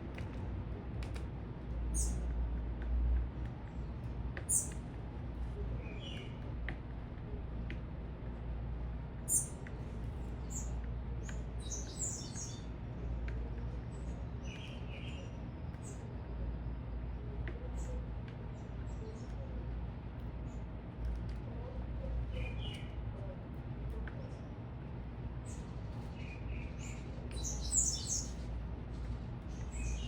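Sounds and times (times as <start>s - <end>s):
small birds chirping: 1.9s - 2.3s, 3.7s - 6.6s, 9.1s - 20.8s, 21.6s - 30.0s.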